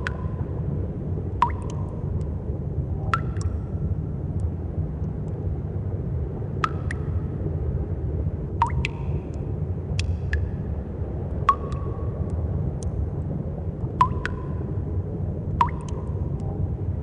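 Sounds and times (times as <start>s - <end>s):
water drops plinking: 0.0s - 0.5s, 1.4s - 2.3s, 3.1s - 3.6s, 6.6s - 7.2s, 8.6s - 9.1s, 11.4s - 12.1s, 14.0s - 14.6s, 15.6s - 16.5s
steady low rumble: 0.0s - 17.0s.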